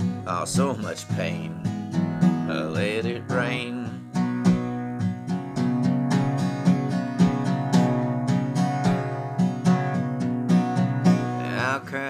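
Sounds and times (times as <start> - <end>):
acoustic guitar picking and strumming: 0.0 - 12.0.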